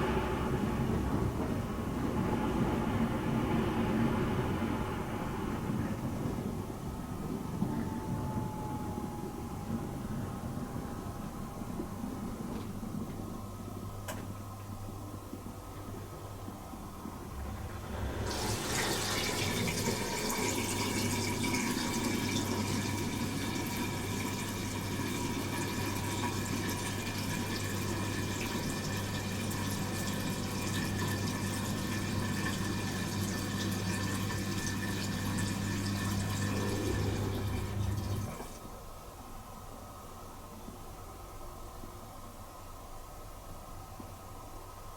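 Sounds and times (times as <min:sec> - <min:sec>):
pump motor hum: 0:00.0 - 0:38.8
water spraying inside dishwasher: 0:17.4 - 0:38.6.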